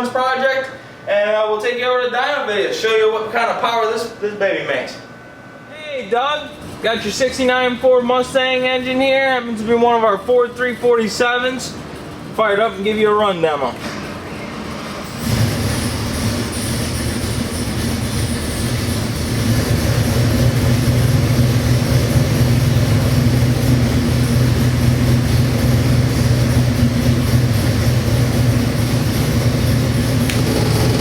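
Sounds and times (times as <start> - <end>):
car engine starting and idling: 15.2 - 31.0.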